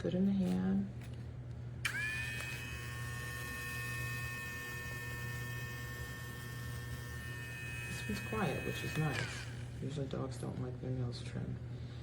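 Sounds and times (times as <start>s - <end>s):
pet nail grinder whining: 1.8s - 9.9s.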